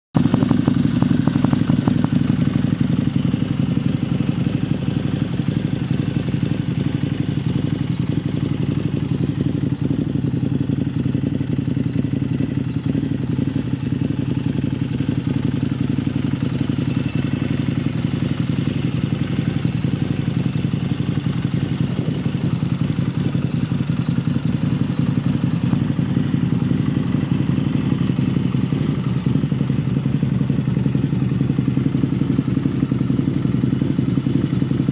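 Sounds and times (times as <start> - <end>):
motorcycle engine idling: 0.2 - 34.9.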